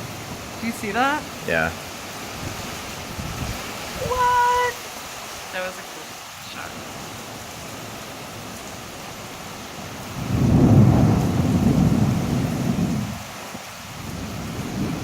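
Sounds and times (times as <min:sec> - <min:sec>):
heavy rain hissing: 0:00.0 - 0:15.0
thunder rumble: 0:10.1 - 0:13.4, 0:14.0 - 0:15.0.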